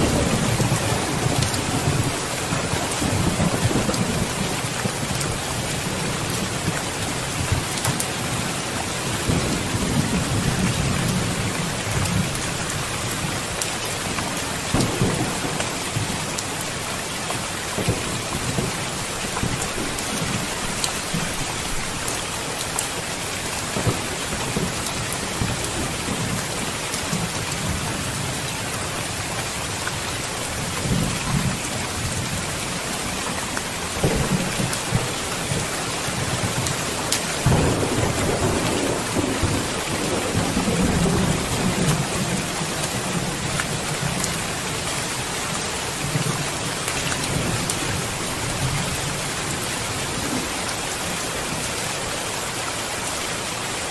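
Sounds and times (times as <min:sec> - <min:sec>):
thunder rumbling: 0:00.0 - 0:13.5, 0:14.1 - 0:22.1, 0:30.5 - 0:45.3
heavy rain: 0:00.0 - 0:53.9.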